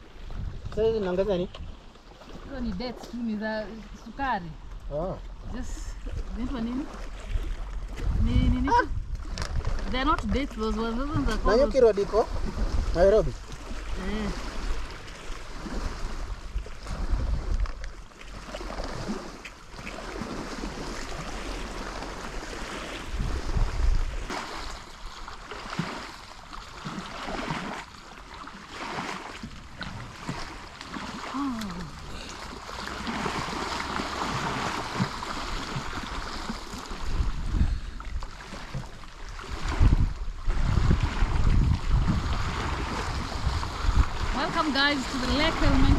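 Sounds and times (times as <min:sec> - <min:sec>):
wind buffeting microphone: 0:00.0 - 0:17.9, 0:20.1 - 0:25.2, 0:33.0 - 0:45.9.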